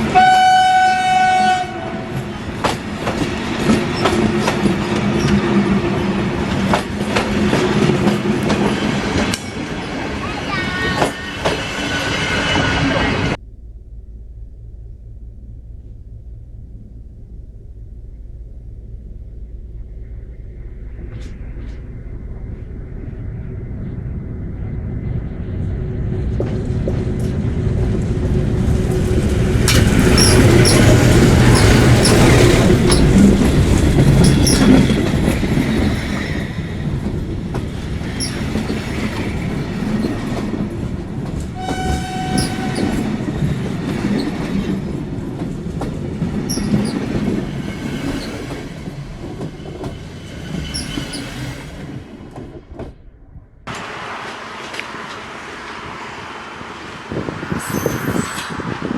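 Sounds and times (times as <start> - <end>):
train horn: 0.0 - 2.3, 41.6 - 43.2
train wheels clattering: 0.0 - 13.0, 25.7 - 53.1
diesel locomotive engine: 0.0 - 58.9
high wheel squeals: 29.7 - 37.1, 38.0 - 40.4, 41.6 - 43.6, 46.5 - 47.1, 50.0 - 51.6, 57.1 - 58.9.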